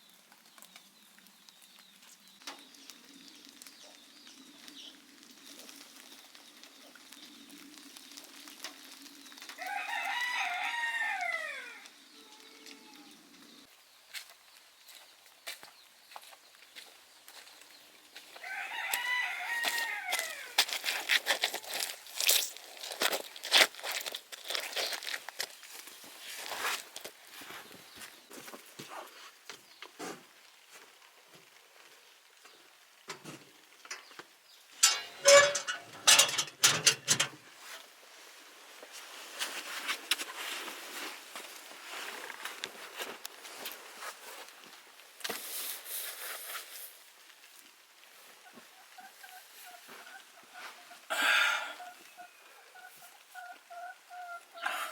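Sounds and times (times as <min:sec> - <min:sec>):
rooster crowing: 0:09.6 - 0:13.1, 0:18.4 - 0:20.6.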